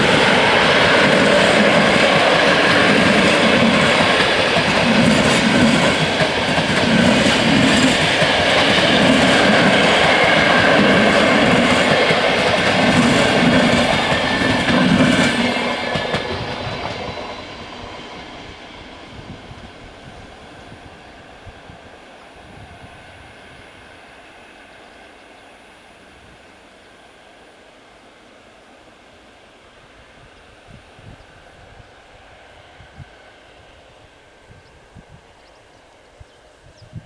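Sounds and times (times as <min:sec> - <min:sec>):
train wheels clattering over rails: 0:00.0 - 0:21.8.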